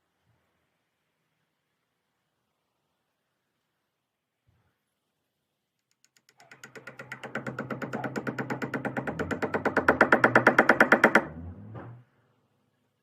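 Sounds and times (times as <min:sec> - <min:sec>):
rapid even knocking: 0:06.1 - 0:11.9.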